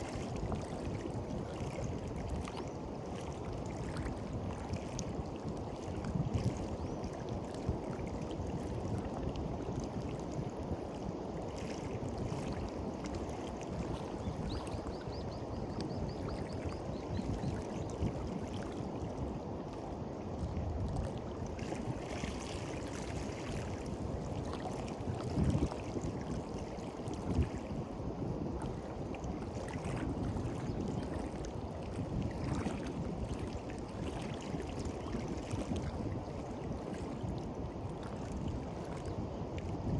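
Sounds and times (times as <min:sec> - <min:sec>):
sea waves washing onto beach: 0:00.0 - 0:06.3
wind rumble on microphone: 0:00.0 - 0:39.9.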